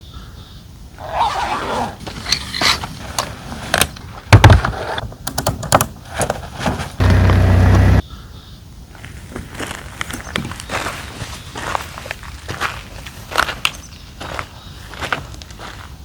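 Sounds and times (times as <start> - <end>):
heavy thump: 7.0 - 8.0
rasping buzz: 7.0 - 8.0.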